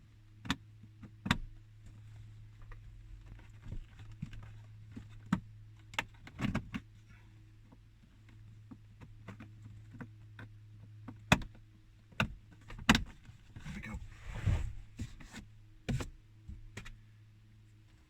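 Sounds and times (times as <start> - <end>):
rustle: 13.2 - 16.1
steady low hum: 13.4 - 18.0.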